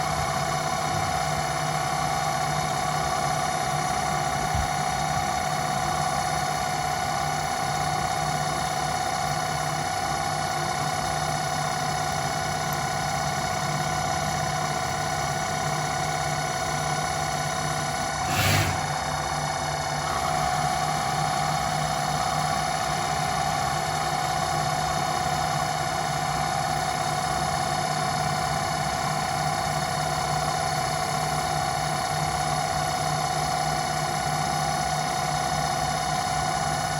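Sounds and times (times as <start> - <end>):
brief hissing rush: 18.2 - 19.0.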